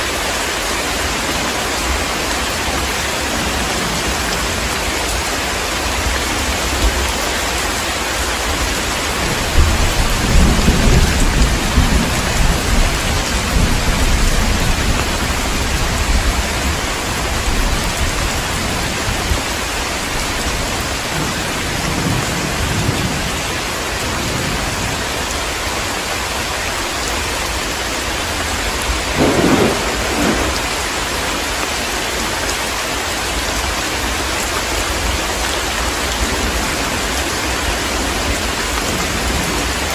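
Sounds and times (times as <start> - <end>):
heavy rain: 0.0 - 39.9
thunder rumbling: 8.3 - 25.4, 27.2 - 32.3
thunder clap: 9.0 - 25.0, 28.4 - 31.8.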